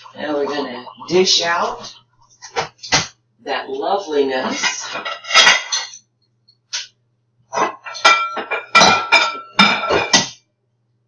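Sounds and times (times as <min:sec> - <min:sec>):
dishes and utensils clattering: 0:04.4 - 0:06.9, 0:07.5 - 0:10.4.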